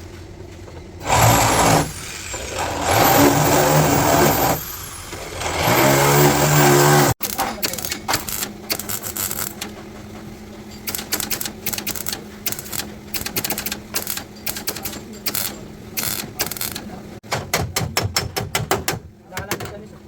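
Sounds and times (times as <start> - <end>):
taps and clicks on sheet steel: 10.8 - 19.8.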